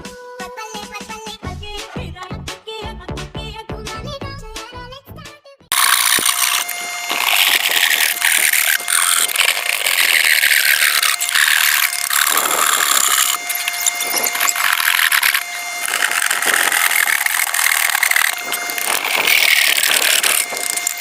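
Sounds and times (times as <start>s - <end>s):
power tool cutting wood: 5.7s - 21.0s.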